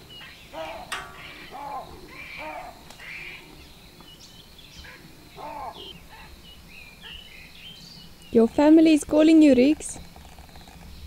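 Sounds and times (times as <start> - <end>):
bird harsh arching calls: 0.2 - 3.6, 4.9 - 6.3.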